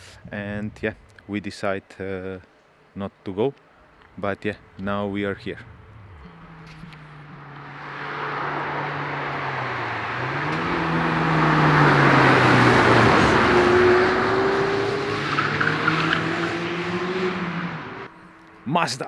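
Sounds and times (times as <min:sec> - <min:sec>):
another car engine: 0:04.6 - 0:18.6
car engine accelerating past: 0:05.6 - 0:18.1.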